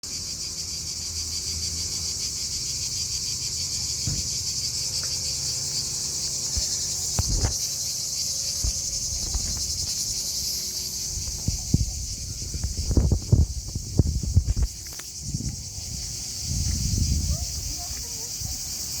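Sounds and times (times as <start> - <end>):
crickets trilling: 0.0 - 19.0
soft low knocks: 8.6 - 10.2.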